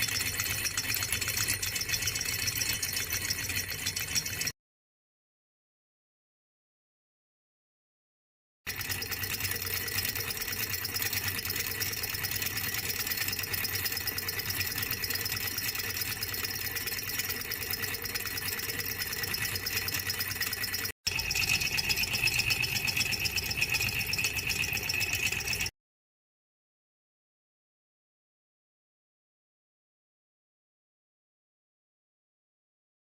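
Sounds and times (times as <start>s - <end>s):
small engine rattling: 0.0s - 4.6s, 8.7s - 25.7s.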